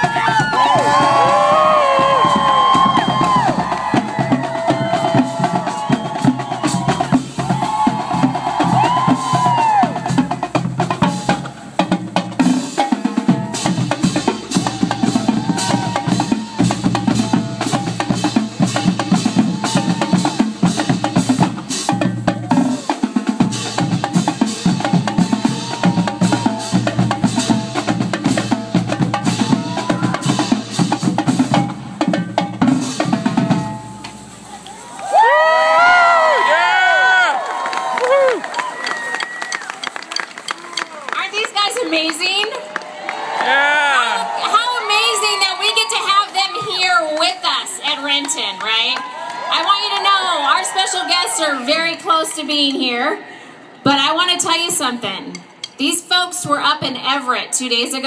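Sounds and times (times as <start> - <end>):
marching drumline: 0.0 - 37.2.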